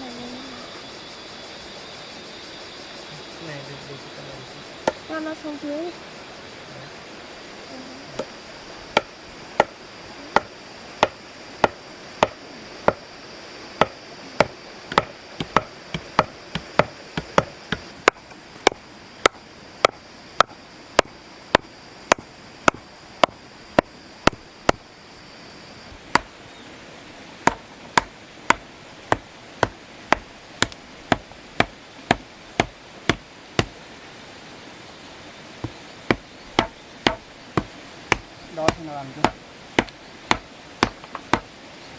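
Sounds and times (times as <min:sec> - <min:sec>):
blade chopping wood: 0:04.8 - 0:05.0, 0:08.9 - 0:09.8, 0:10.4 - 0:13.1, 0:13.8 - 0:24.8, 0:25.9 - 0:26.4, 0:27.4 - 0:33.8, 0:35.6 - 0:41.5.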